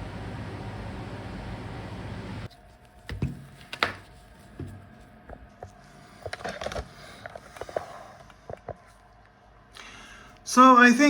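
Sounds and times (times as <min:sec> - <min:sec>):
hands handling laptop parts: 0:02.5 - 0:09.0.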